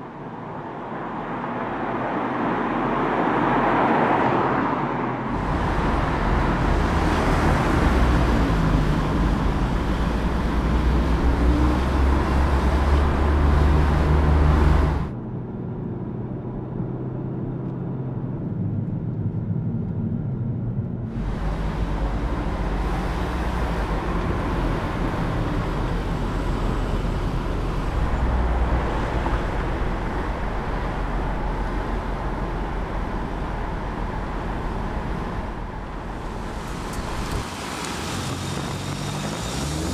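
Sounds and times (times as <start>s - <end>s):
tyre and road noise: 0.0s - 15.2s, 16.2s - 39.9s
car engine running: 21.1s - 39.9s.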